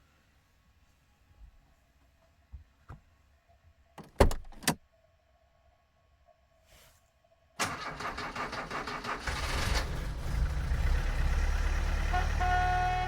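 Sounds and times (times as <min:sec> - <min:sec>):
car engine cranking and idling: 0:07.6 - 0:12.6
car horn: 0:11.9 - 0:13.0.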